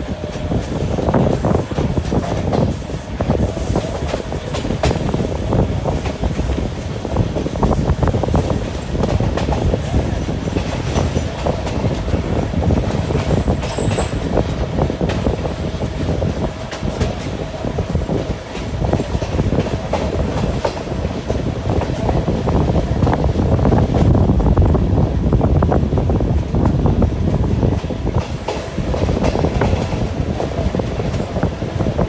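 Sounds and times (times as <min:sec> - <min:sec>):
train wheels clattering over rails: 0:00.0 - 0:32.0
high wheel squeals: 0:13.3 - 0:14.4.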